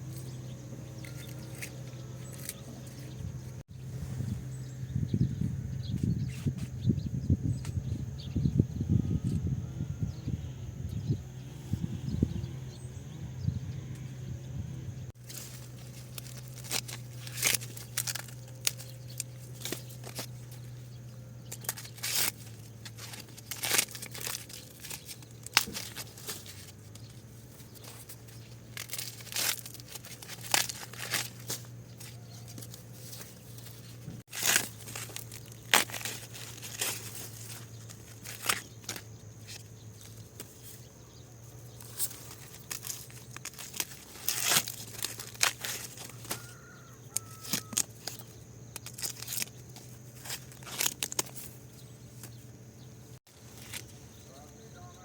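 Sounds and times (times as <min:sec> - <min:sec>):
sharp tearing and crackling: 0:01.0 - 0:03.1, 0:15.2 - 0:40.9, 0:41.6 - 0:52.4.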